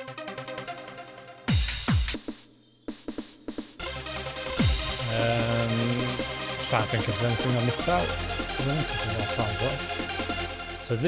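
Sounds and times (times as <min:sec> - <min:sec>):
electronic dance music: 0:00.0 - 0:11.0
fast synth riff: 0:03.8 - 0:11.0.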